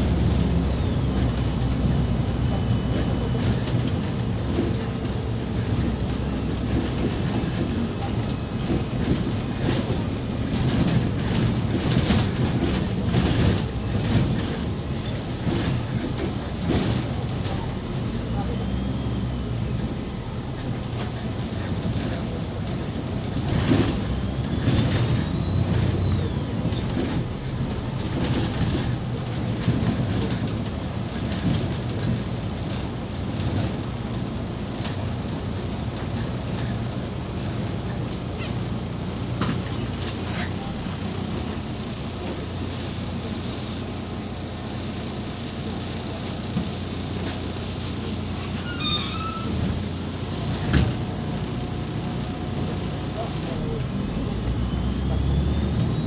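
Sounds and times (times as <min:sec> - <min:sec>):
bus engine and road rumble: 0:00.0 - 0:56.0
rattles and clicks from bus body: 0:00.0 - 0:56.0
bus fittings rattling: 0:48.3 - 0:50.9.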